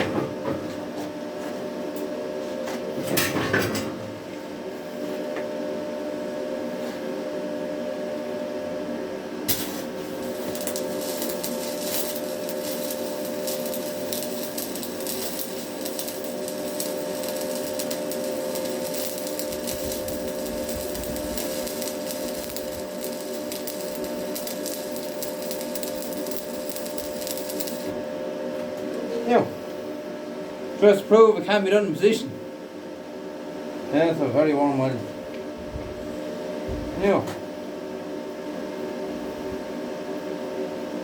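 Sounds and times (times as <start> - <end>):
welding machine hum: 9.4 - 29.1
welding arc crackling and sizzling: 9.5 - 28.1.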